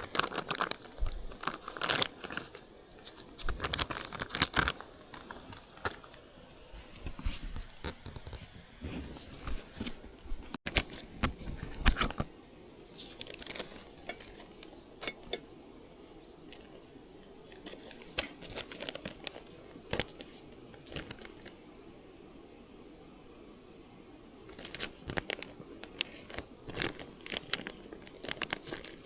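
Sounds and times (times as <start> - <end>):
objects being handled: 6.8 - 21.8, 24.4 - 29.0.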